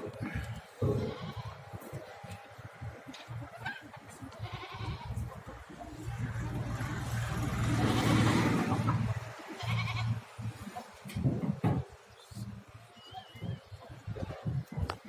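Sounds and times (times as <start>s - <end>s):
goats bleating: 0.1s - 2.6s, 3.7s - 5.6s, 7.0s - 10.8s.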